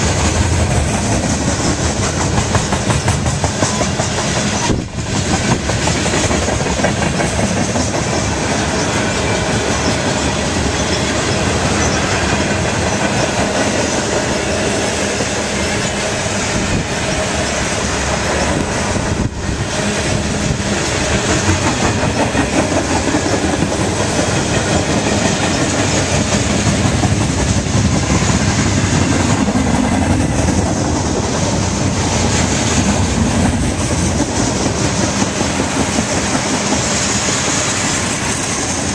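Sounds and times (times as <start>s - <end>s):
train wheels clicking over rail joints: 0.0s - 38.9s.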